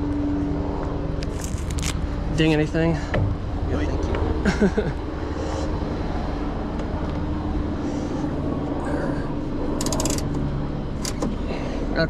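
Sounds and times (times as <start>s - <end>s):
rapid clatter of clicks: 9.8s - 10.3s.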